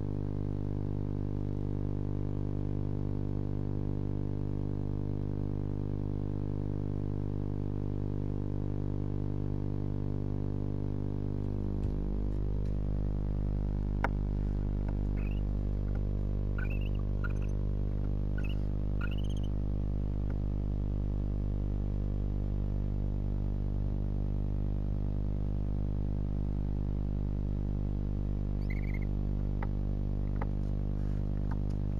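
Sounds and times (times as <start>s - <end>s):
electrical hum: 0.0s - 31.9s
owls twittering: 15.2s - 15.5s, 16.6s - 17.6s, 18.3s - 19.5s, 28.6s - 29.1s.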